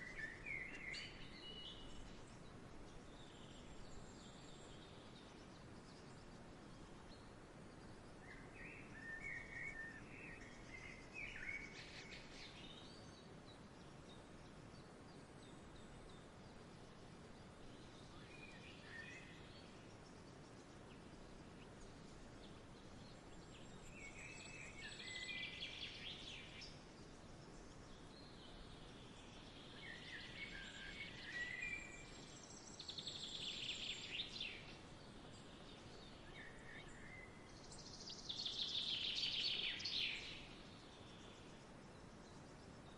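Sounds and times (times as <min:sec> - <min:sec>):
birds chirping: 0:00.0 - 0:42.9
soft steady hiss: 0:00.0 - 0:42.9.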